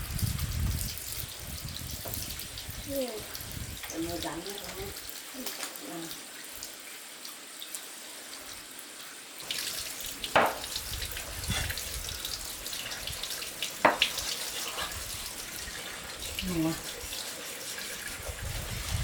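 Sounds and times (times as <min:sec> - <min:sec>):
tap water splashing: 0:01.6 - 0:08.5, 0:09.4 - 0:19.0
sharp knocks: 0:10.4 - 0:10.7.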